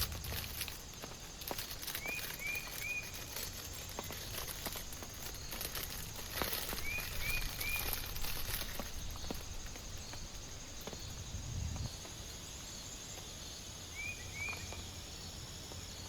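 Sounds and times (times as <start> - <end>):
small animal chirping: 0.0 - 10.5
rain falling: 0.0 - 11.0
raindrops tapping: 0.0 - 11.1.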